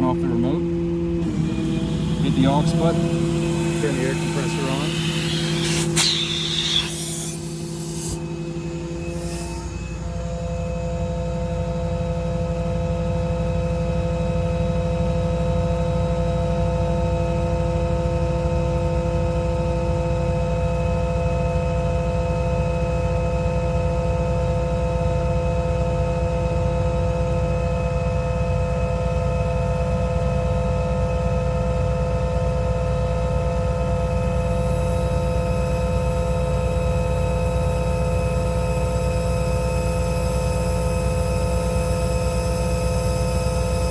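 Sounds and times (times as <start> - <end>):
air compressor tones: 1.0 - 13.1, 29.2 - 43.9
diesel engine rumbling: 1.2 - 10.1.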